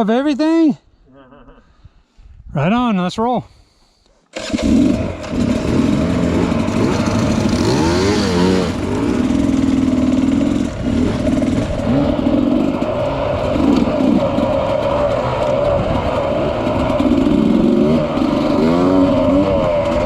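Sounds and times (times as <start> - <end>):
bike rattling and clatter: 4.4 - 20.0
bike running drone: 4.4 - 20.0.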